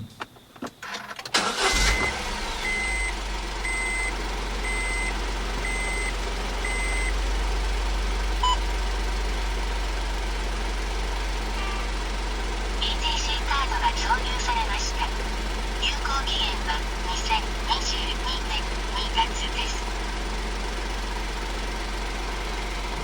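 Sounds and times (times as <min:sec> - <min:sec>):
small car engine starting and idling: 0:00.0 - 0:23.0
car warning chime beeping: 0:01.4 - 0:07.2.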